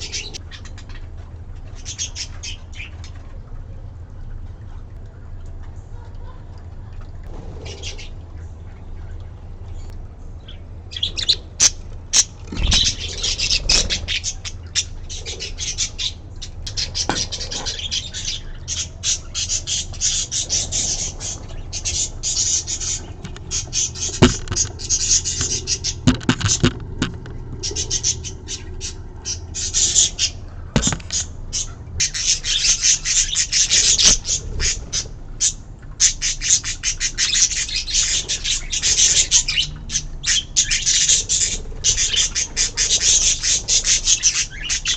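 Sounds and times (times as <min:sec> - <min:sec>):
budgerigars chattering and squawking: 0:00.0 - 0:01.1, 0:01.7 - 0:03.1, 0:07.5 - 0:08.2, 0:09.8 - 0:44.9.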